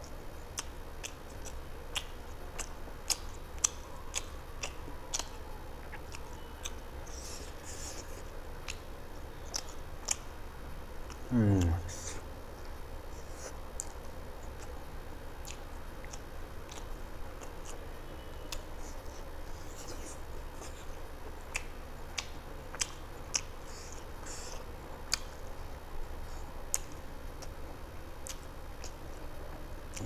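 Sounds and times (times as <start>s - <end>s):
close chewing: 0.0s - 10.3s, 11.0s - 12.2s, 15.4s - 25.6s, 26.2s - 30.0s
steady low hum: 0.0s - 30.0s
mouth clicks and smacks: 15.4s - 17.8s, 21.5s - 25.4s, 26.7s - 27.6s.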